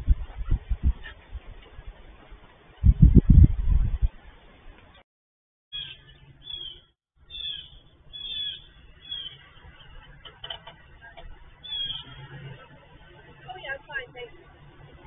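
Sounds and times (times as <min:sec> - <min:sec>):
birds chirping: 0:05.7 - 0:14.0.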